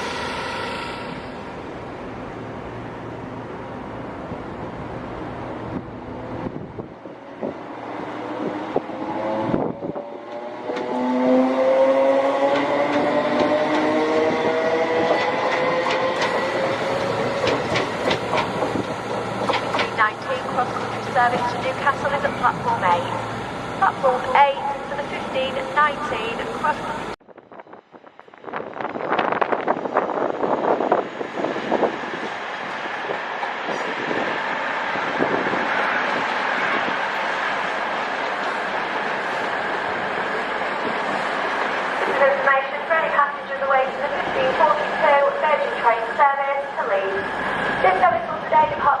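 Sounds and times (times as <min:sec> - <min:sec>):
train rumble: 0:00.0 - 0:49.0
train whine on rails: 0:00.0 - 0:49.0
wheels clicking over rail joints: 0:15.0 - 0:20.0.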